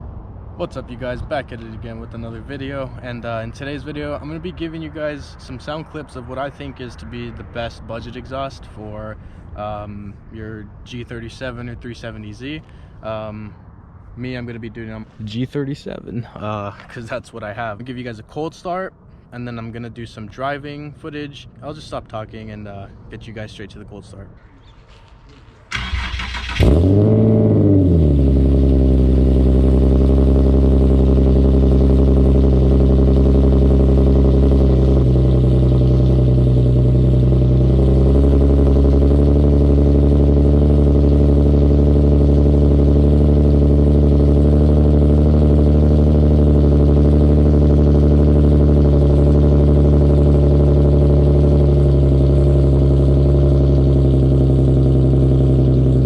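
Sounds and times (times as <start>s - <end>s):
car engine cold start and idle: 0.0s - 56.0s.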